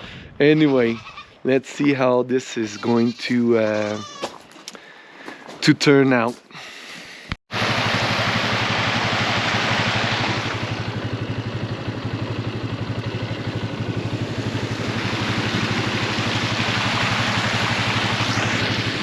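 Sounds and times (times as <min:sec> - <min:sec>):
vehicle engine low throb: 0:07.5 - 0:19.0.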